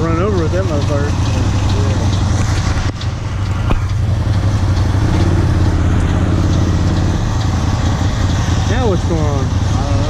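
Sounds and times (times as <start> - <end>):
combine diesel engine drone: 0.0 - 10.0.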